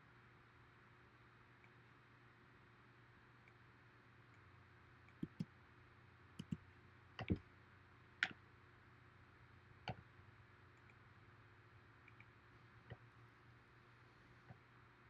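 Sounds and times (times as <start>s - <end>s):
faint low hum: 0.0s - 15.0s
computer mouse clicking: 5.1s - 5.5s, 6.4s - 6.6s, 7.2s - 7.4s.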